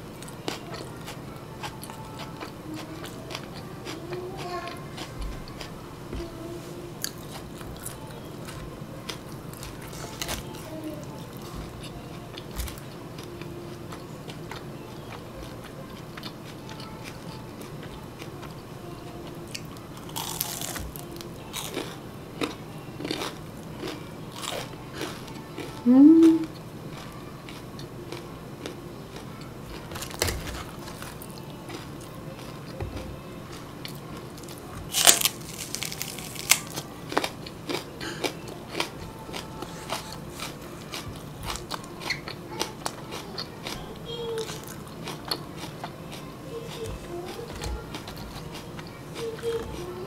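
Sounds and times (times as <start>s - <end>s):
crispy food crackles: 0.0s - 32.8s, 33.4s - 50.0s
loud crunching bite: 19.5s - 21.0s, 33.9s - 40.6s.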